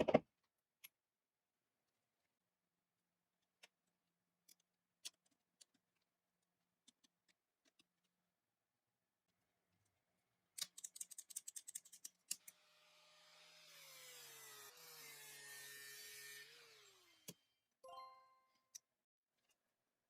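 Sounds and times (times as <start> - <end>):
small power tool running: 12.4 - 17.5.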